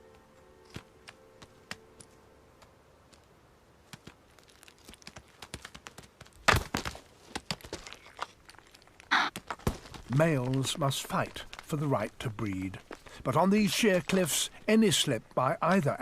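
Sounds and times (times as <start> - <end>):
hooves knocking on rock: 3.1 - 8.1, 9.1 - 16.0.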